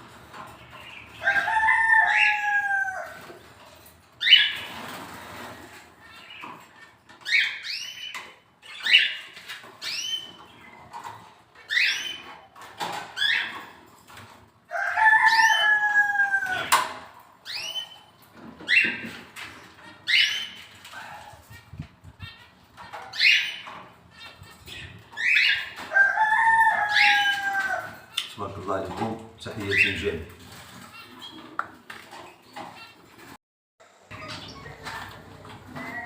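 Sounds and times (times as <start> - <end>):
rooster crowing: 1.2 - 3.2, 14.7 - 16.8, 25.9 - 28.0.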